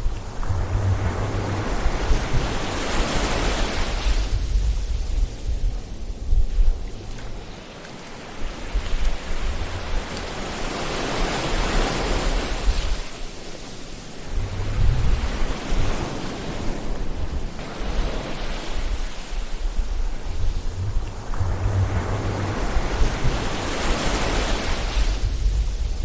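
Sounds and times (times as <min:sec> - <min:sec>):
low rumbling surges: 0:00.0 - 0:07.6, 0:14.1 - 0:26.0
ocean waves breaking on shore: 0:00.0 - 0:26.0.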